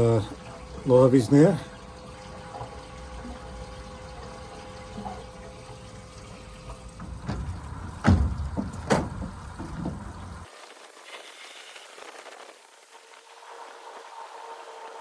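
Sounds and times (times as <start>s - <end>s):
steady low hum: 0.0s - 10.5s
water running and splashing: 0.0s - 14.0s
sharp knocks: 7.0s - 10.5s.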